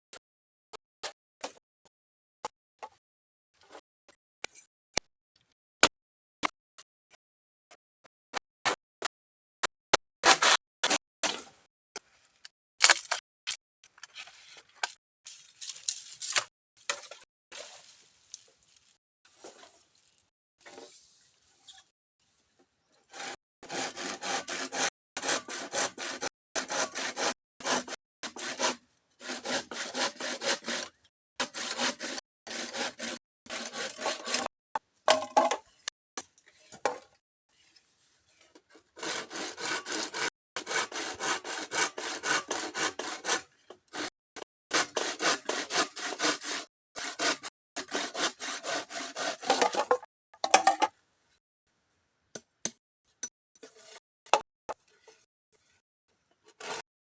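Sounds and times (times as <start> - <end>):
hand saw cutting bamboo: 10.2 - 11.4, 23.1 - 34.5, 38.9 - 50.1, 56.5 - 56.9.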